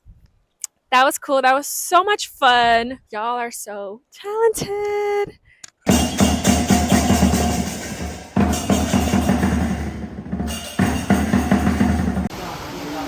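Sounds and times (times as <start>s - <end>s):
fast loud drumming: 5.9s - 12.3s
crashing cymbals: 5.9s - 13.0s.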